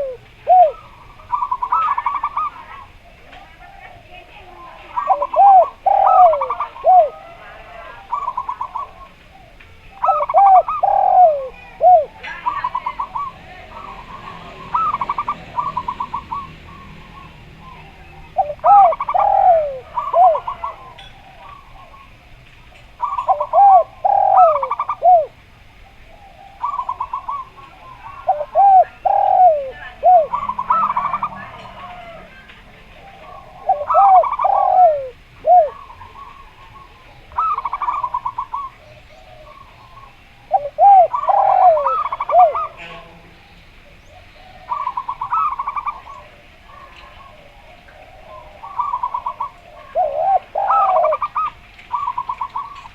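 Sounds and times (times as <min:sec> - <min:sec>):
dove stuttering coo trills: 0:00.0 - 0:43.1, 0:43.8 - 0:52.9
dove low arching coos: 0:00.0 - 0:52.9.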